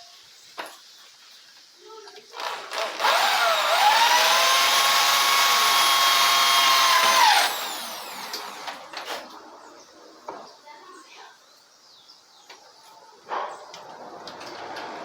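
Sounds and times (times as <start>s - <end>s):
small power tool motor spinning: 2.4s - 9.2s.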